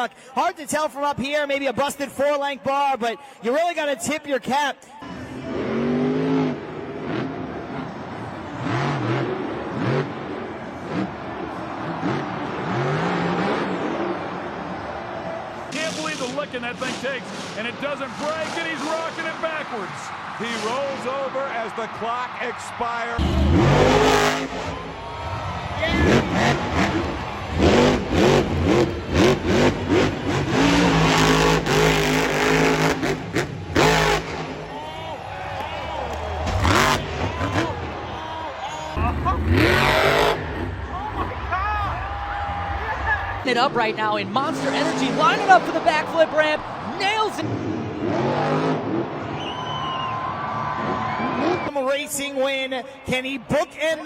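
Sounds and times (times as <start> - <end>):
engine revving: 5.0 - 15.0, 23.2 - 34.8, 36.1 - 38.0, 39.0 - 49.5.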